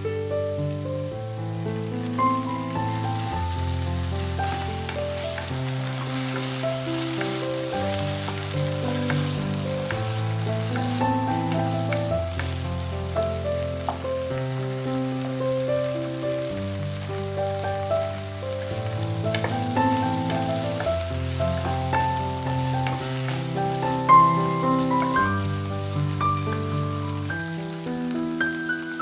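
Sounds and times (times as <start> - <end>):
food sizzling in a pan: 0.0 - 29.0
soft background music: 0.0 - 29.0
wooden spatula scraping and tapping: 4.4 - 12.6, 18.8 - 25.3.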